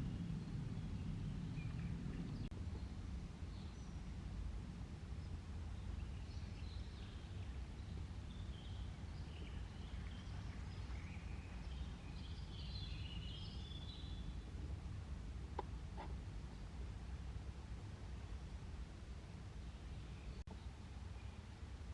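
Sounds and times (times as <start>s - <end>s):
small birds chirping: 0.0s - 4.2s, 5.1s - 14.7s, 19.2s - 21.6s
low background rumble: 0.0s - 21.9s.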